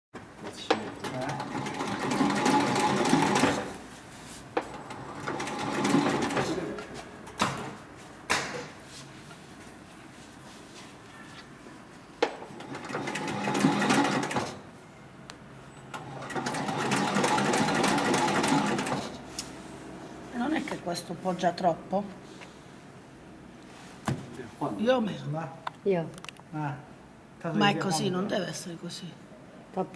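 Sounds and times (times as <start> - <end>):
sewing machine stitching leather: 1.0 - 3.8, 4.7 - 6.7, 12.5 - 14.6, 15.9 - 19.2.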